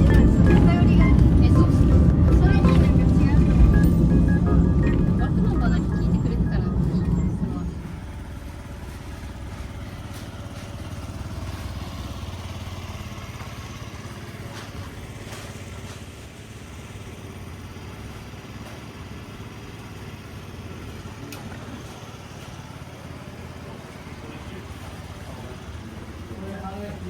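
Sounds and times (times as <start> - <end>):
electric train humming: 0.0 - 15.2.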